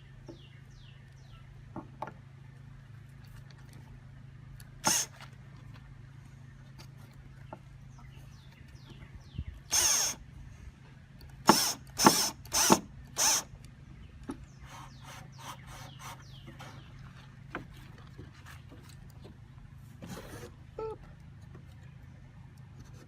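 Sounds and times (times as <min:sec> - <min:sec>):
small birds chirping: 0:00.0 - 0:23.0
power drill driving screws: 0:04.8 - 0:05.3, 0:09.7 - 0:10.2, 0:11.4 - 0:13.5.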